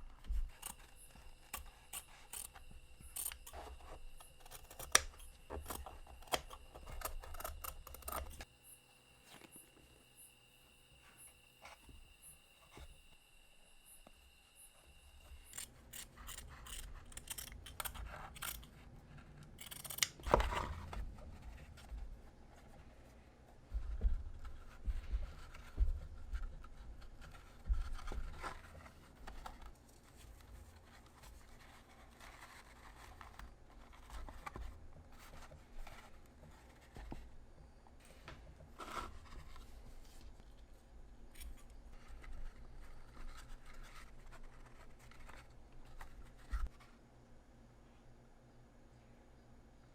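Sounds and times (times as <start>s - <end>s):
scissors snipping: 0.4s - 8.5s, 15.4s - 18.8s, 19.4s - 20.9s
crafting materials knocking and rustling: 19.7s - 40.5s.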